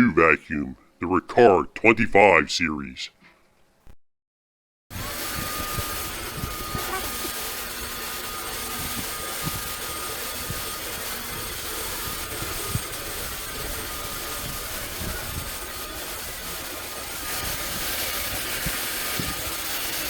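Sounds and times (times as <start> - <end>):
vacuum cleaner running: 4.9 - 20.0.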